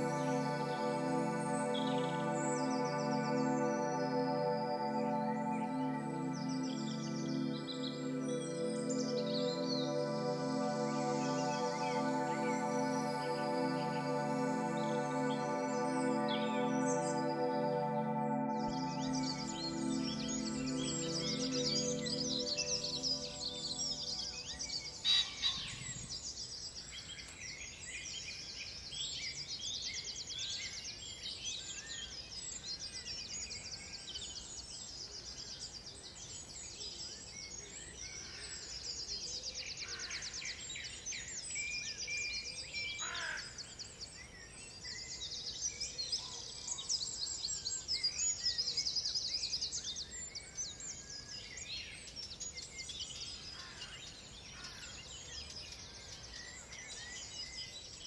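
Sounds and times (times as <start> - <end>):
steady outdoor hiss: 0.0 - 26.8
songbirds singing: 0.0 - 58.0.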